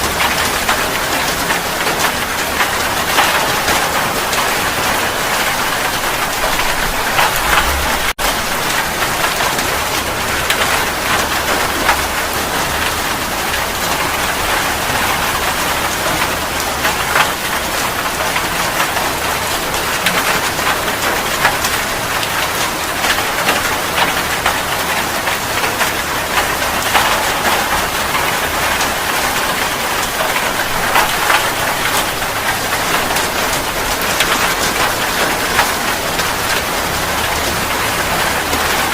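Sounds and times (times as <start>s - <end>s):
steady rain falling: 0.0s - 38.9s
low rumble: 6.0s - 8.5s.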